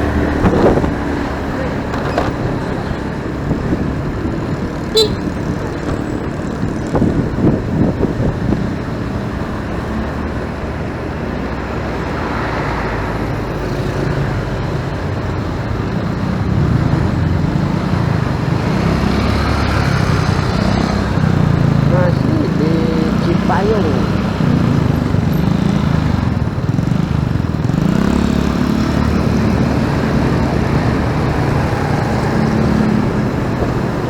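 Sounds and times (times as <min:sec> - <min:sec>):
low engine hum: 0:00.0 - 0:27.7
traffic rumble: 0:00.0 - 0:34.0.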